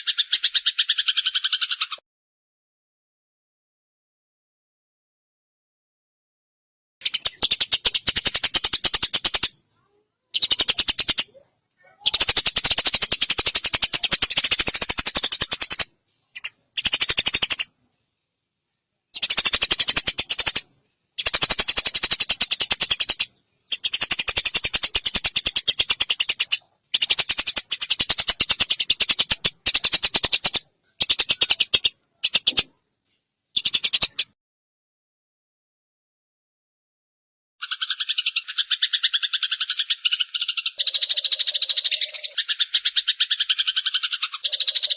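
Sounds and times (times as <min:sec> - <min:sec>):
sparrows chattering: 0:00.0 - 0:02.0, 0:07.0 - 0:17.7, 0:19.1 - 0:32.7, 0:33.6 - 0:34.3, 0:37.6 - 0:44.9.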